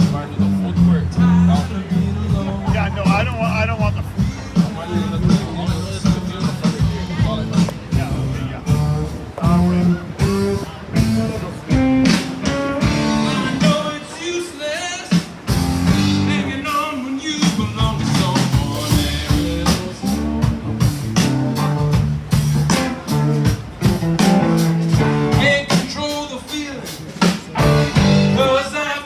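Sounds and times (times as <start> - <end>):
rock music with singing: 0.0 - 29.0.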